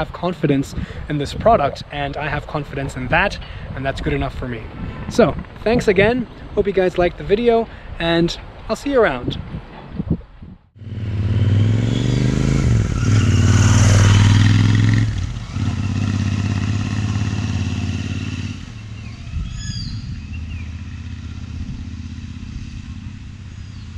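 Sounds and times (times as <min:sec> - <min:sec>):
motorcycle engine pulling away: 0:10.8 - 0:23.9.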